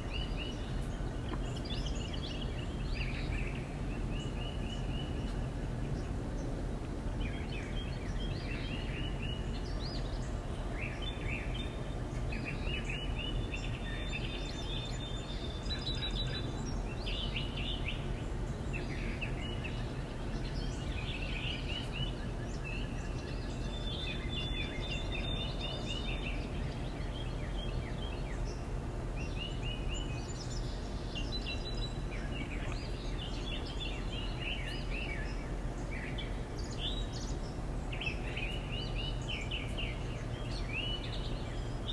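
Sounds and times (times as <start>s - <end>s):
small songbirds chirping: 0.0s - 41.9s.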